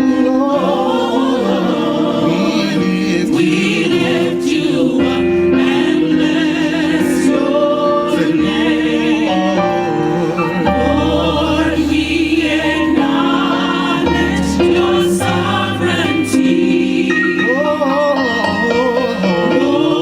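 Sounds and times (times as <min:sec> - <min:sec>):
gospel choir singing: 0:00.0 - 0:20.0
instrumental backing: 0:00.0 - 0:20.0
low bass line: 0:10.5 - 0:13.4.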